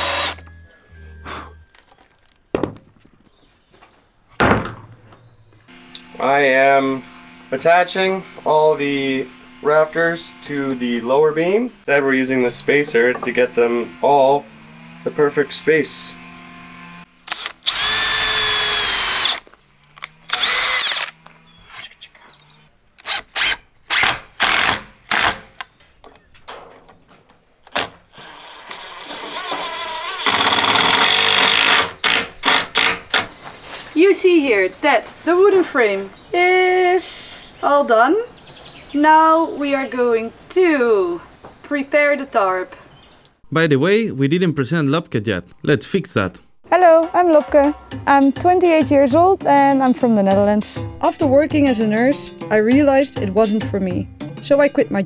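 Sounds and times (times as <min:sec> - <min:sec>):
power drill whirring: 0:00.0 - 0:02.8, 0:05.5 - 0:25.8, 0:27.6 - 0:34.0
wooden thunks: 0:01.6 - 0:05.7, 0:12.9 - 0:13.4, 0:24.1 - 0:28.1.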